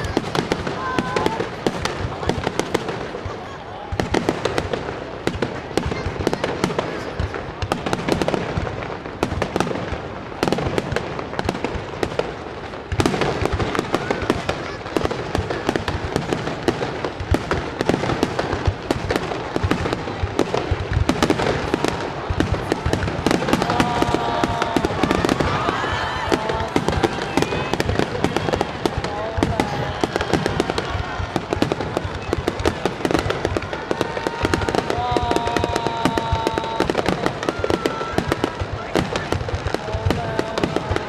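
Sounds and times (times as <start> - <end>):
fireworks bangs and crackles: 0.0 - 41.0.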